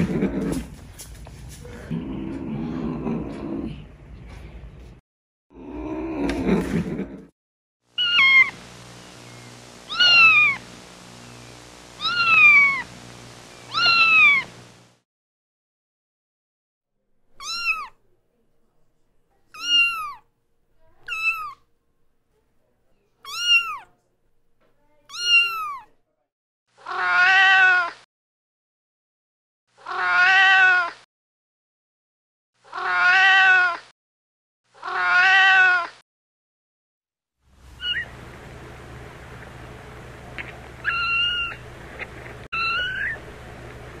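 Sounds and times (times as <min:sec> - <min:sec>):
kittens meowing: 0:08.0 - 0:08.6, 0:09.9 - 0:10.6, 0:12.0 - 0:12.9, 0:13.7 - 0:14.5, 0:17.4 - 0:18.0, 0:19.6 - 0:20.2, 0:21.1 - 0:21.6, 0:23.3 - 0:23.9, 0:25.1 - 0:25.9, 0:26.9 - 0:28.0, 0:29.9 - 0:31.0, 0:32.7 - 0:33.8, 0:34.8 - 0:35.9, 0:37.8 - 0:38.1, 0:40.8 - 0:41.6, 0:42.6 - 0:43.2.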